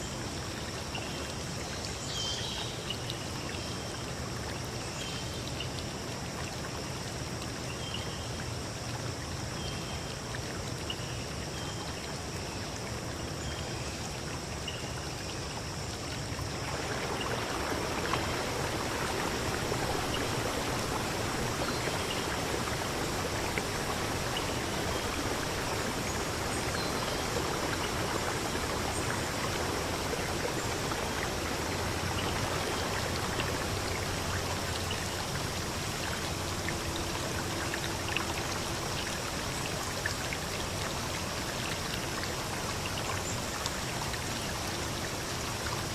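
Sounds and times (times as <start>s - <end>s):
river rushing: 16.2s - 45.9s.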